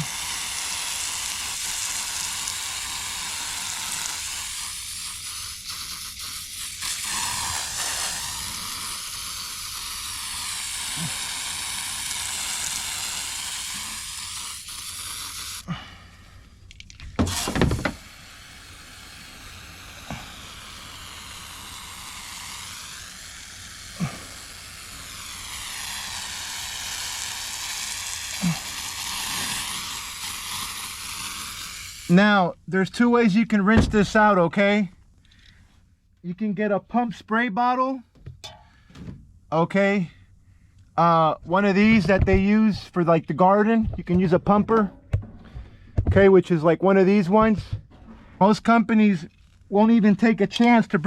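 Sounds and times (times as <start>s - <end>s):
foaming cleaner fizzing: 0.0s - 15.7s, 16.7s - 32.3s.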